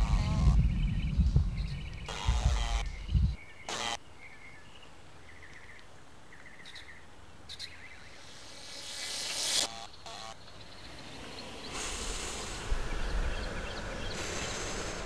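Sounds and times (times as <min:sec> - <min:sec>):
loud low rumble: 0:00.0 - 0:02.1
small birds trilling: 0:00.0 - 0:15.0
hiss: 0:10.9 - 0:15.0.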